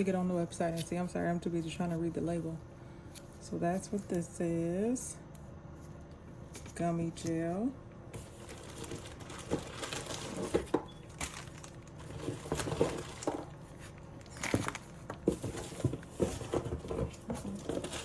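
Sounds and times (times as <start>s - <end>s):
plastic packaging crinkling: 8.2s - 18.0s.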